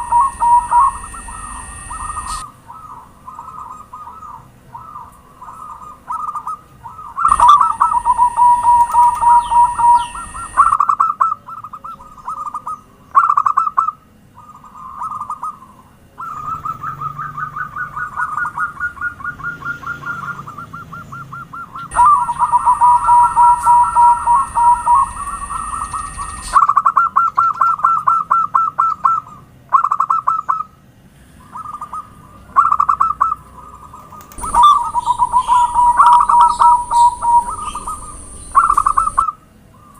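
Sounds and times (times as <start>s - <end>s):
faint steady high tone: 0.0s - 5.8s, 7.0s - 10.8s, 21.9s - 26.7s, 34.3s - 39.4s
doves cooing: 0.0s - 30.7s, 31.3s - 39.9s.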